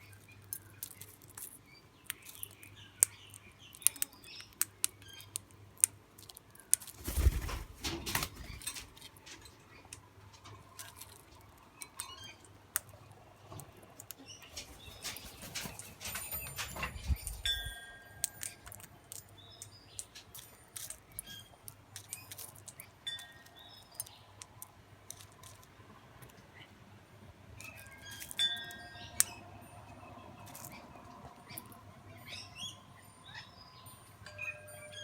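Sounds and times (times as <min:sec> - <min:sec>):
birds feeding clicks and taps: 0:00.0 - 0:26.4, 0:27.6 - 0:29.4, 0:30.4 - 0:32.7.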